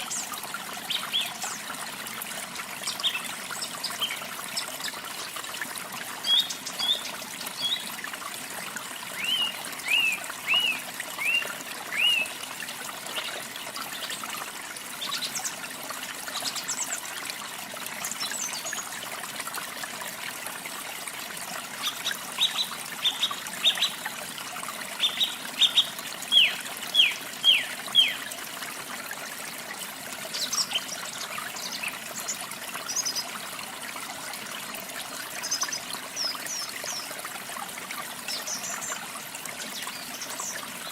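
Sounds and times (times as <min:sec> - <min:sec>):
birds singing: 0:00.0 - 0:01.6, 0:06.2 - 0:08.0, 0:08.9 - 0:12.4, 0:21.8 - 0:24.0, 0:25.0 - 0:28.3, 0:30.3 - 0:33.3, 0:38.2 - 0:40.9
water trickling: 0:00.0 - 0:40.9.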